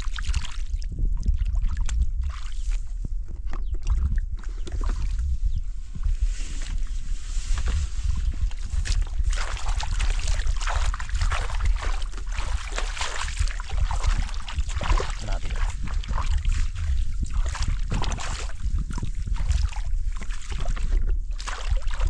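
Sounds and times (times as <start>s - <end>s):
water splashing in a stream: 0.0s - 2.8s, 8.1s - 22.0s
wind rumble on microphone: 0.0s - 22.0s.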